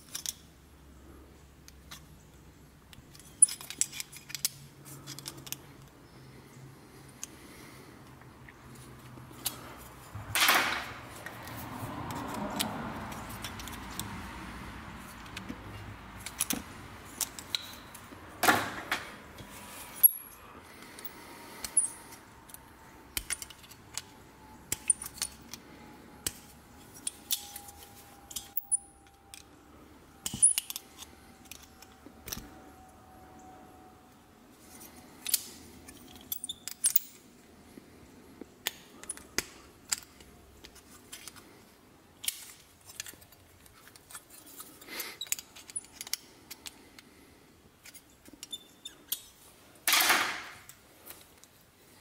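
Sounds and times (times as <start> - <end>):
light metallic clicks and clinks: 21.0 - 29.6, 35.2 - 37.3.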